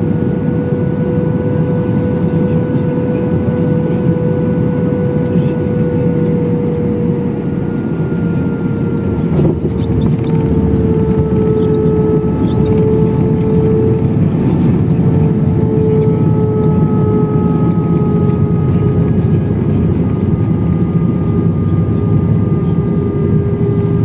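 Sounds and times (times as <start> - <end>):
jet engine rumble in cabin: 0.0 - 24.0.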